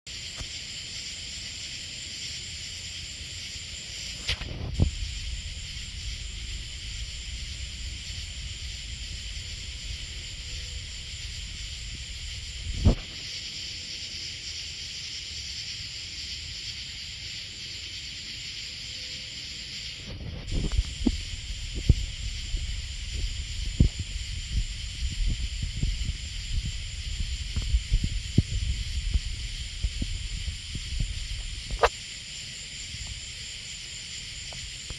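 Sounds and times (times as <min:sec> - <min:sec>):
high-pitched hiss: 0:00.1 - 0:34.9
dull low thump: 0:04.4 - 0:13.0, 0:20.2 - 0:31.9
low rumble: 0:04.5 - 0:13.0, 0:20.2 - 0:31.8.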